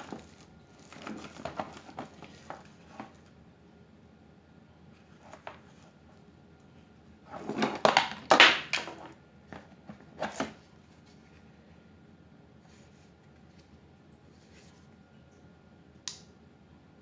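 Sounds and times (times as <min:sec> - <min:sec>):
packaging rustling: 0:00.0 - 0:03.3, 0:07.3 - 0:09.1
plastic parts knocking: 0:07.4 - 0:09.1.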